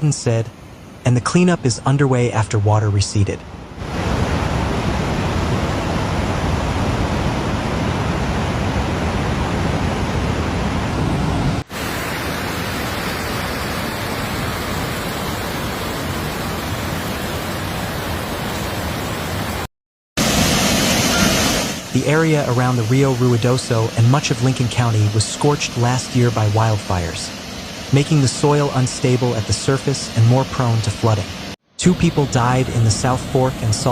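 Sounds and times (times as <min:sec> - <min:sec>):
floodwater rushing: 0:11.7 - 0:33.9.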